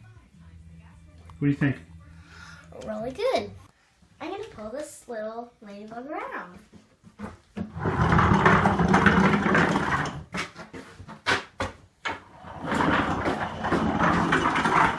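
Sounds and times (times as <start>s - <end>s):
wooden toy wheels rolling: 7.6s - 10.8s, 12.1s - 14.9s.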